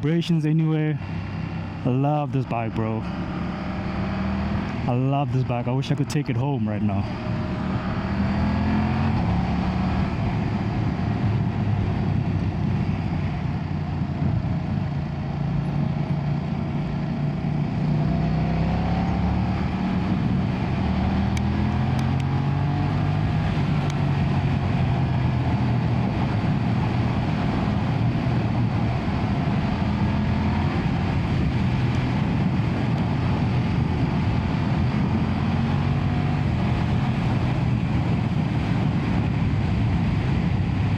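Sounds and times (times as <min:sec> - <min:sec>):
motorcycle engine revving: 0:02.9 - 0:04.9, 0:07.1 - 0:12.4, 0:15.3 - 0:39.2.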